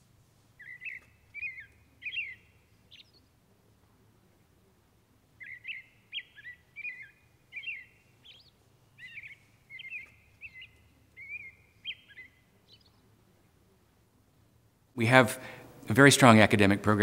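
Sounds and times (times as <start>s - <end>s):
bird chirping: 0.6s - 3.4s, 5.3s - 13.2s.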